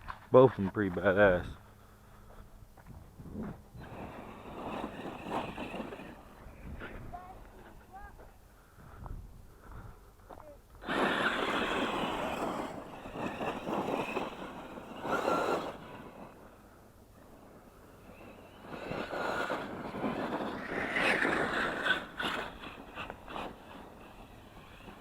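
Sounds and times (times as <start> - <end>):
tyres on gravel: 0.0 - 25.0
electric motor whine: 10.8 - 25.0.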